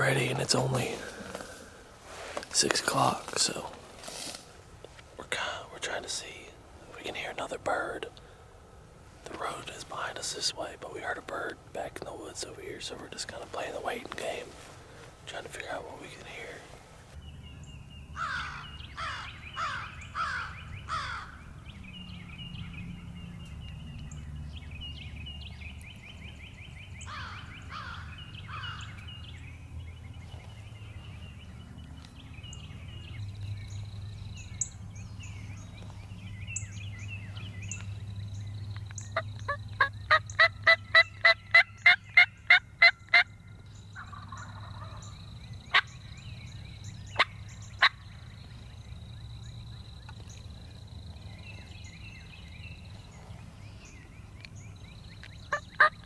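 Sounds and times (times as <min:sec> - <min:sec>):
songbirds singing: 0:00.0 - 0:56.0
turkey gobbling: 0:39.5 - 0:43.3, 0:44.0 - 0:45.1, 0:55.5 - 0:56.0.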